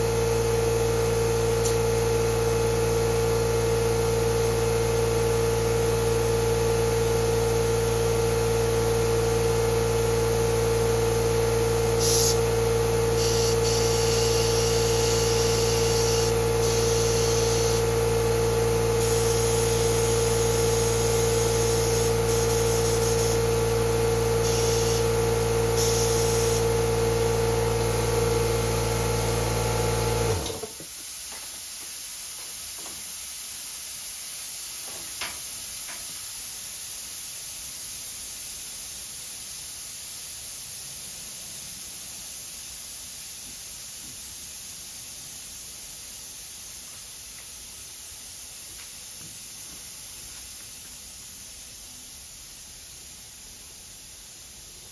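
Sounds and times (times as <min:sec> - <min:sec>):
high hiss bursts: 0:11.9 - 0:26.8, 0:30.6 - 0:54.9.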